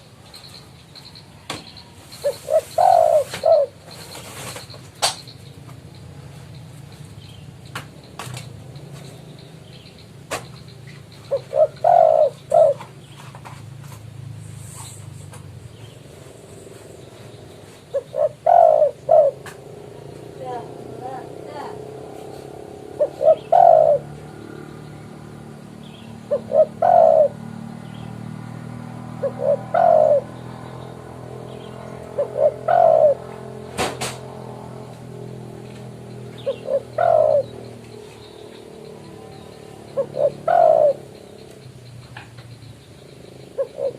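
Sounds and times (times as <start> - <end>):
dove cooing: 1.4 - 5.2, 10.3 - 13.6, 16.1 - 43.9.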